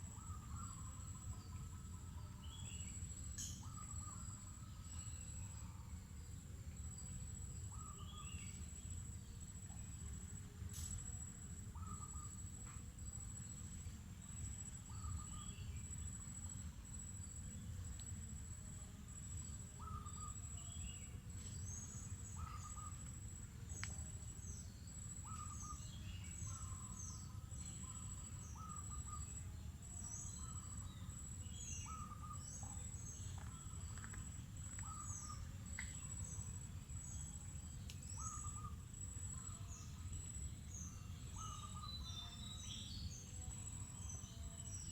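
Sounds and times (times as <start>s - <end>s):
birds calling and chirping: 31.6s - 36.4s, 40.7s - 43.2s.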